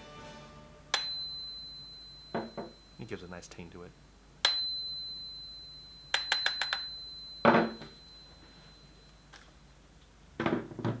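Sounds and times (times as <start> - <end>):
metal part ringing: 0.9 - 3.1, 4.4 - 9.4.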